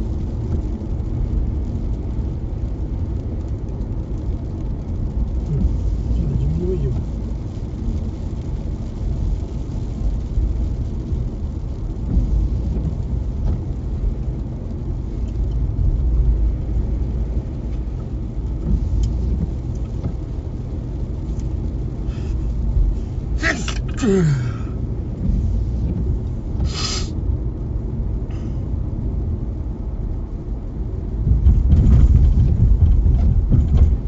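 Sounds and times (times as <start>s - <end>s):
car engine rumble: 0.0s - 34.0s
tyres on wet road: 0.0s - 34.0s
faint ticks: 17.7s - 20.2s.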